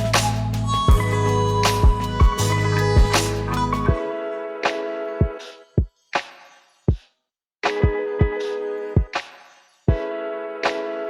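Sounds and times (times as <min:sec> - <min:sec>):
steady bass: 0:00.0 - 0:04.0
drum beat: 0:01.8 - 0:03.3.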